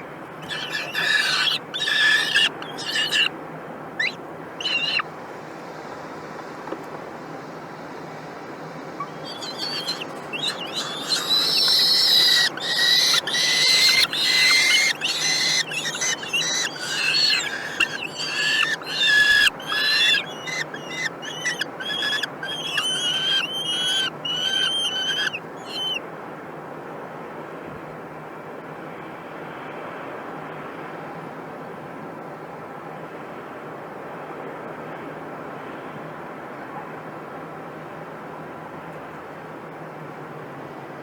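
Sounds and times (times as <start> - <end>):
kestrels calling shrilly: 0.4 - 3.3, 4.0 - 5.0, 9.0 - 26.0.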